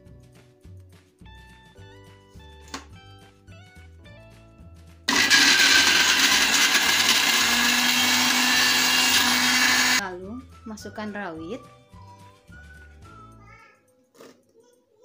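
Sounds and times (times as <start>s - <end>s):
soft background music: 0.0s - 5.1s, 10.0s - 15.0s
electric blender grinding: 5.1s - 10.0s.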